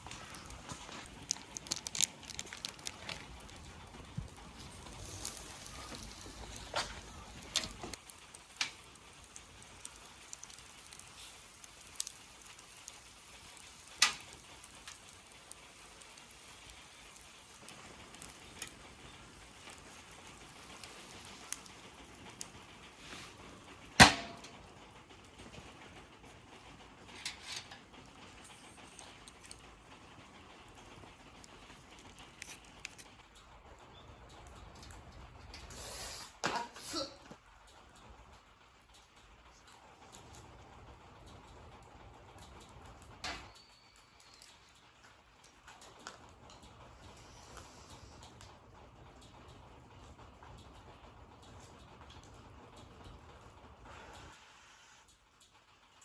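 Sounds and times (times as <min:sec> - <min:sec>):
sharp clicks and knocks: 0:00.0 - 0:11.0.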